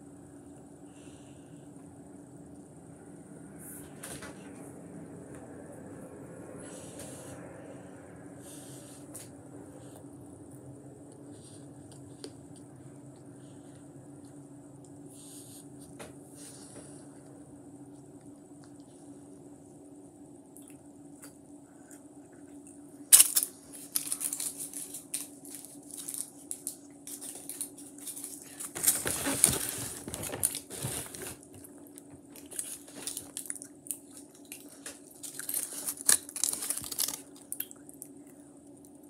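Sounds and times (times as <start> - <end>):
steady low hum: 0.0 - 39.0
crinkling and tearing handling noises: 23.1 - 38.1.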